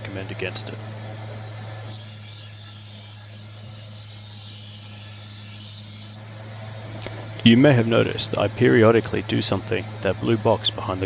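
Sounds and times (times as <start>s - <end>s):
steel grinding hiss: 1.8s - 6.2s
electric grinder humming: 1.8s - 6.3s.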